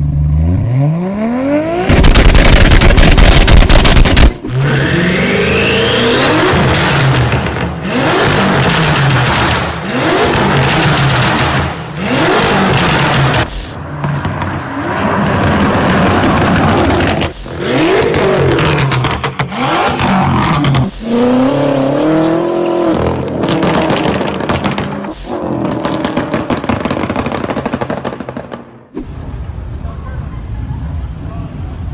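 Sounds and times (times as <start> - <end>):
car engines revving: 0.0 - 27.6
exhaust pops and crackles: 1.9 - 4.5, 6.7 - 11.8, 15.5 - 20.9, 22.9 - 29.2.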